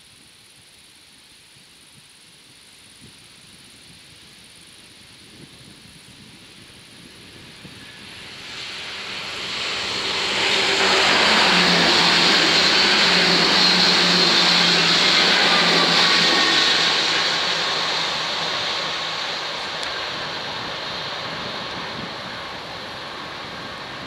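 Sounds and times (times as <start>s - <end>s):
train wheels rushing on rail: 7.0s - 24.0s.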